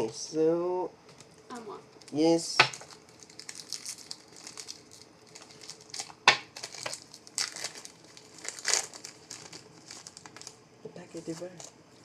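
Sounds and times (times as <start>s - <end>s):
card pack wrapper crinkling: 2.0s - 10.6s.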